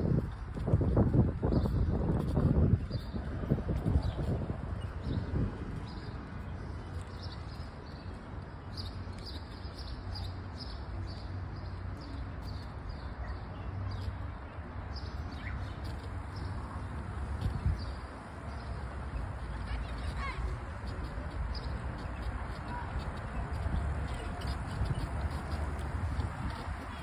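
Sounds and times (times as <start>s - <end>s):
small birds chirping: 0.2s - 27.0s.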